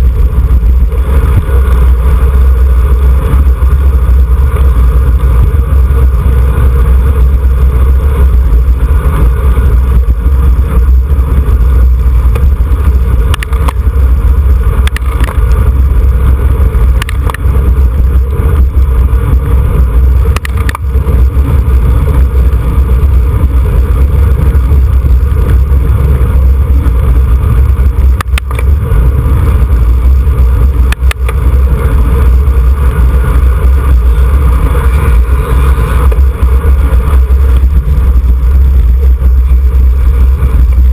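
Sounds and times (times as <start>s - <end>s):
wind buffeting microphone: 0.0s - 40.9s
sharp clicks: 13.3s - 13.8s, 14.8s - 15.6s, 17.0s - 17.5s, 20.3s - 20.9s, 28.2s - 28.8s, 30.9s - 31.4s.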